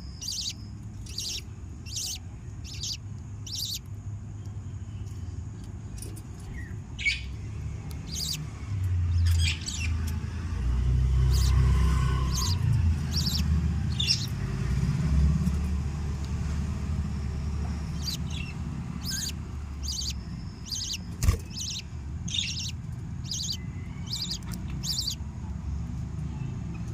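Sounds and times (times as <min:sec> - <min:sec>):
budgerigars chirping: 0:00.0 - 0:03.8, 0:06.5 - 0:08.5, 0:09.1 - 0:10.2, 0:11.1 - 0:14.4, 0:17.0 - 0:25.2.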